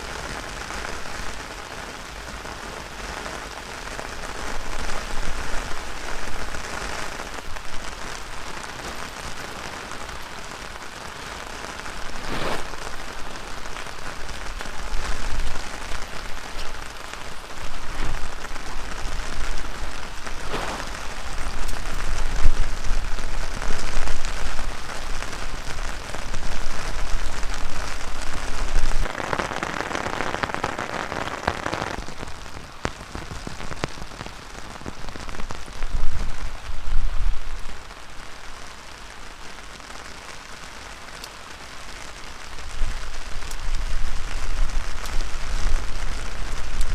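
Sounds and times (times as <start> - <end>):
heavy rain falling: 0.0 - 46.9
wind rumbling on microphone: 12.0 - 37.9, 42.6 - 46.9.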